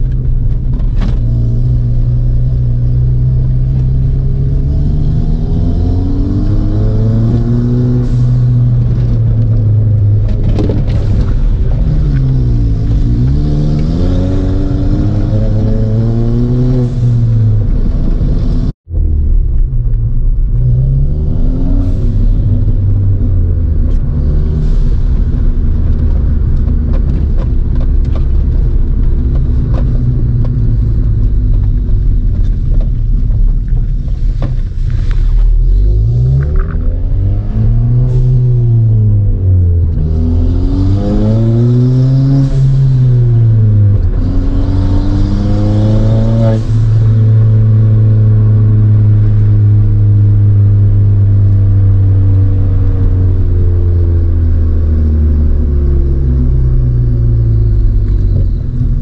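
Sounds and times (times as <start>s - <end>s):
car engine revving from inside cabin: 0.8s - 18.8s, 35.0s - 59.0s.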